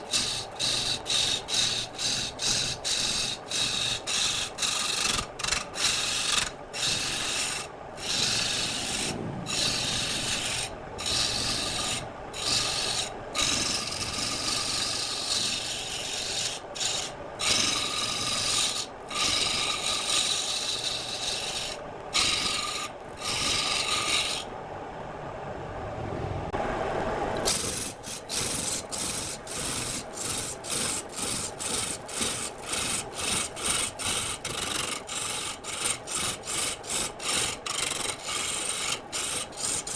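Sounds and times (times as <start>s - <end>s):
lathe tool cutting wood: 0.1s - 24.5s, 27.5s - 39.9s
lathe running: 5.8s - 24.4s, 27.4s - 39.9s.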